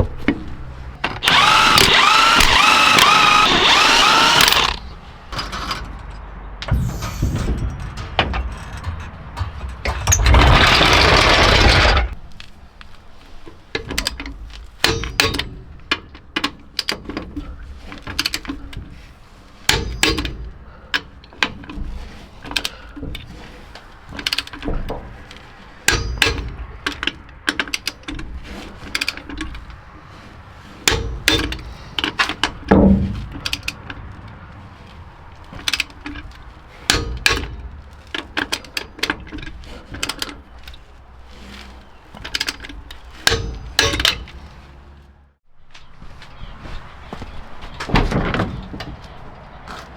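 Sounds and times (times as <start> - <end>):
metal tools clinking and ratcheting: 1.2 - 12.2, 14.8 - 17.2, 19.7 - 20.6, 41.4 - 44.4
heavy thud: 6.6 - 12.2.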